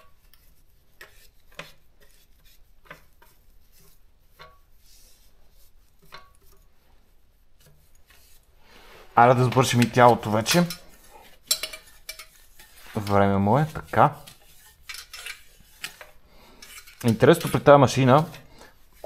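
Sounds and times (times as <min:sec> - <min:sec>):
soft rubbing: 0:00.0 - 0:19.0.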